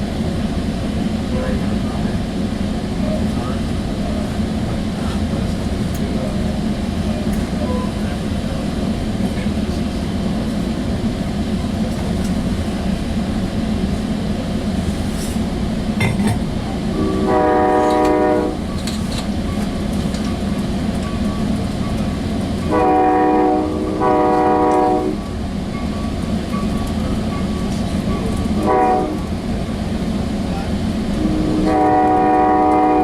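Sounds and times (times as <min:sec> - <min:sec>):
train rumble: 0:00.0 - 0:33.0
train horn: 0:16.9 - 0:18.7, 0:22.6 - 0:25.3, 0:28.6 - 0:29.4, 0:31.2 - 0:33.0.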